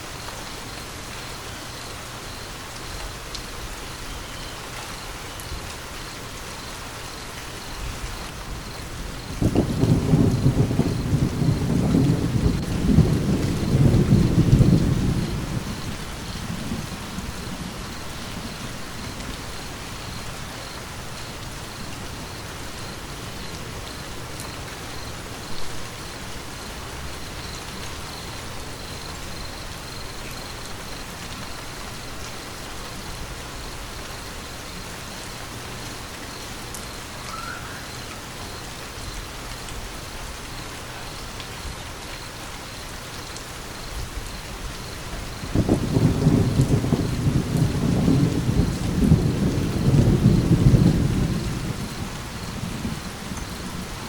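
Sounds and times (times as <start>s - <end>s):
rain falling: 0.0s - 54.0s
rolling thunder rumble: 7.8s - 24.3s, 44.0s - 54.0s.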